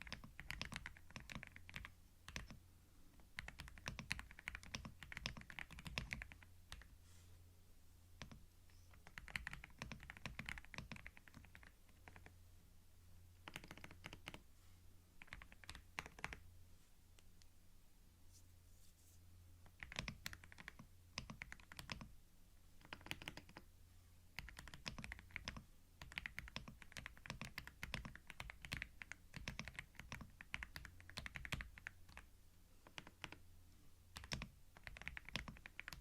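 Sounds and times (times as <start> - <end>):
computer keyboard typing: 0.0 - 2.6, 3.3 - 6.9, 8.2 - 12.3, 13.4 - 14.4, 15.2 - 16.4, 19.6 - 22.1, 22.8 - 23.6, 24.4 - 33.4, 34.1 - 36.0
faint low hum: 0.0 - 36.0.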